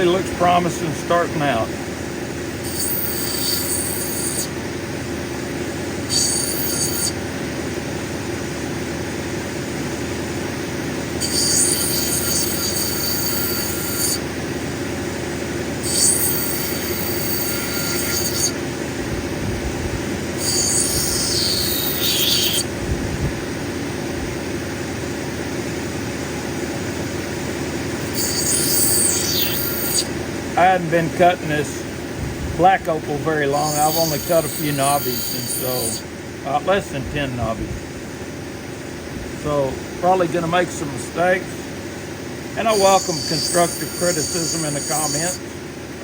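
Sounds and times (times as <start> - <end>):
grinding machine running: 0.0 - 37.6, 39.3 - 46.0
stone squealing against grinding wheel: 2.6 - 4.6, 6.1 - 7.2, 11.2 - 14.3, 15.8 - 18.6, 20.3 - 22.8, 28.0 - 30.2, 33.5 - 36.0, 42.6 - 45.5.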